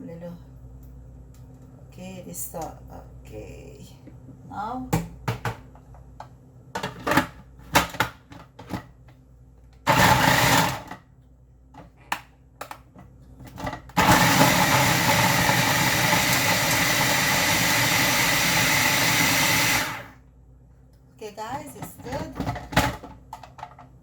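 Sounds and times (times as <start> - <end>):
food processor motor running: 9.9 - 10.9, 13.9 - 20.2.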